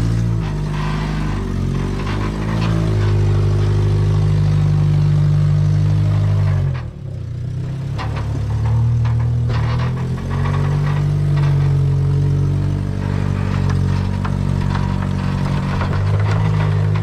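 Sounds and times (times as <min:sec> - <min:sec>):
off-road vehicle engine running: 0:00.0 - 0:17.0
light clicks and knocks: 0:07.6 - 0:17.0.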